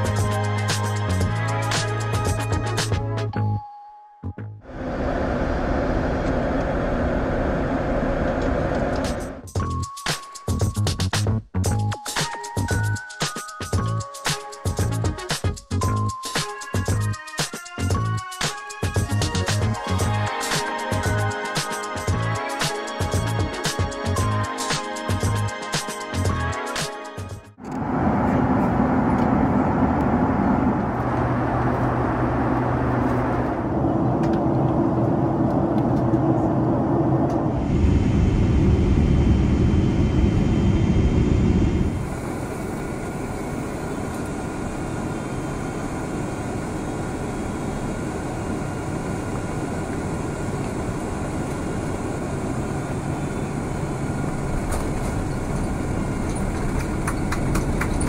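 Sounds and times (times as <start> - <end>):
airplane cabin jet engine noise: 4.6 - 9.5, 27.6 - 58.0
low hum: 4.6 - 9.5, 27.6 - 58.0.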